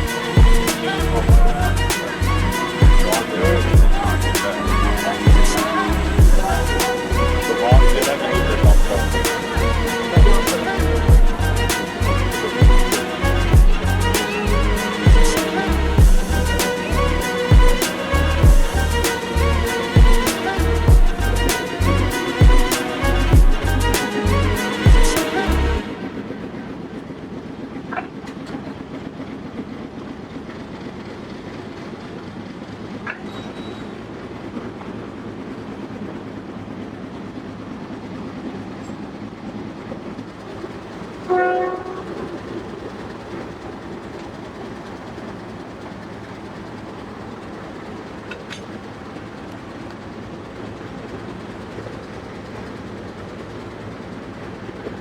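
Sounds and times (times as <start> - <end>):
train horn blast: 0.0 - 27.4, 41.2 - 43.2
train rumbling: 0.0 - 55.0.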